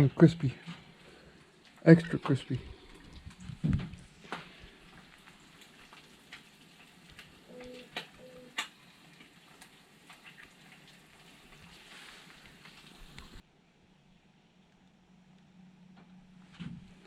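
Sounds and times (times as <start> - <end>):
food sizzling in frying pan: 4.2 - 13.4.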